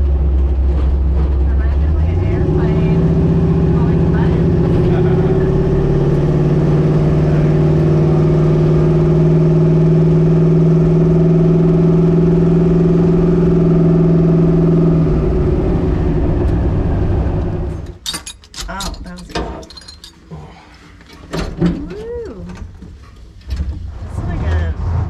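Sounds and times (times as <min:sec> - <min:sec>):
engine running at steady revs: 0:00.0 - 0:18.0, 0:23.8 - 0:25.0.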